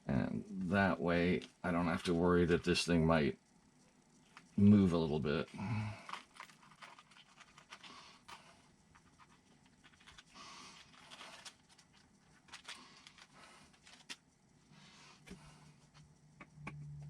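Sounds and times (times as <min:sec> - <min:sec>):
faint clicks of small parts: 0:03.8 - 0:04.6, 0:05.4 - 0:14.4.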